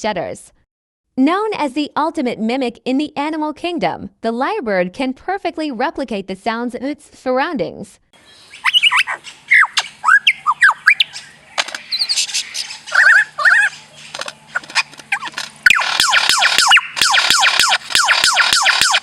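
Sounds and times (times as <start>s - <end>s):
lyrebird whistled calls and clicks: 8.5s - 19.0s.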